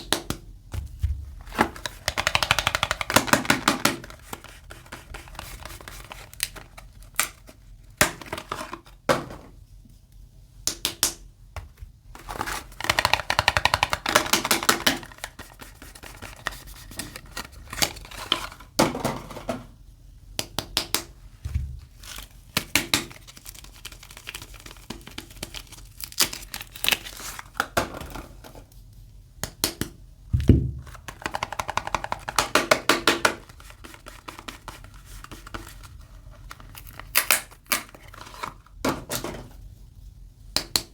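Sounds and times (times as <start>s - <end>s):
packaging crinkling and tearing: 5.1s - 7.5s, 21.8s - 27.7s, 35.4s - 38.8s
crisp clicks and crackles: 22.0s - 27.8s.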